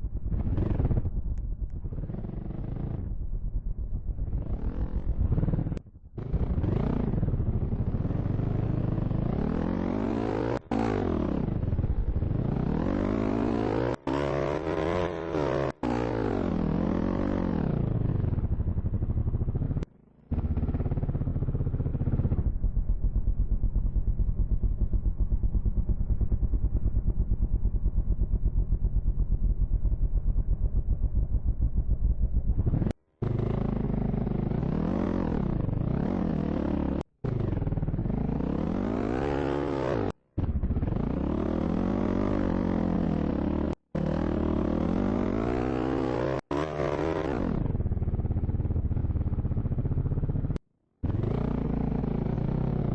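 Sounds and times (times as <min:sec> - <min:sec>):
dirt bike engine revving: 0:04.2 - 0:22.4, 0:32.5 - 0:52.9.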